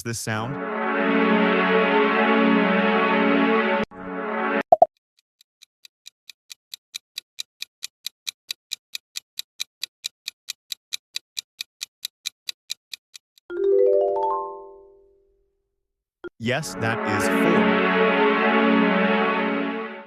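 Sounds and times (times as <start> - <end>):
timer ticking: 4.7 - 13.5.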